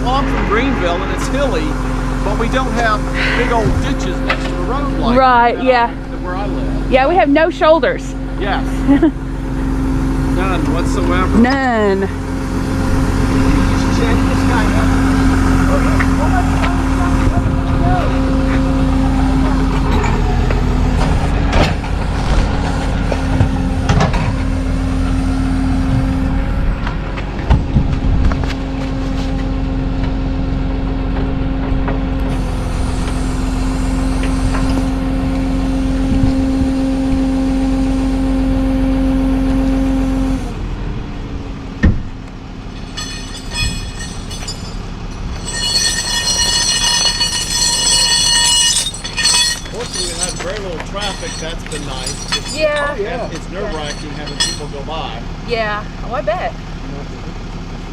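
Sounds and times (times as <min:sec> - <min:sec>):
tow truck engine running: 0:00.0 - 0:57.9
clanks and knocks: 0:42.7 - 0:54.8
high multi-tone squeal: 0:42.8 - 0:54.8.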